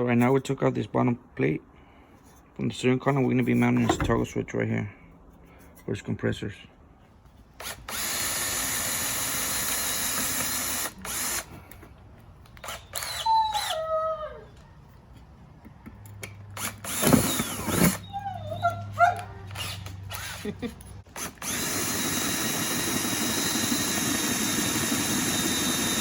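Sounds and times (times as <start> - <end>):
power drill running: 7.6 - 11.5, 12.6 - 13.7, 16.6 - 18.0, 19.6 - 20.4, 21.1 - 26.0.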